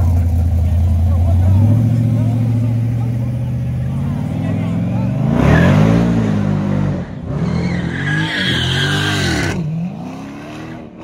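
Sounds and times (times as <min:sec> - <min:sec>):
car engine revving hard: 0:03.7 - 0:11.0
tires squealing and skidding: 0:05.3 - 0:06.1, 0:07.2 - 0:10.9.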